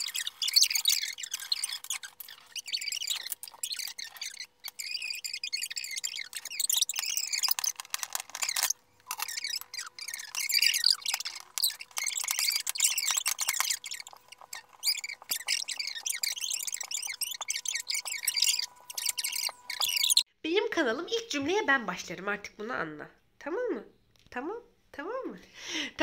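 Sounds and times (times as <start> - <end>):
small bird twittering: 0.0 - 20.2.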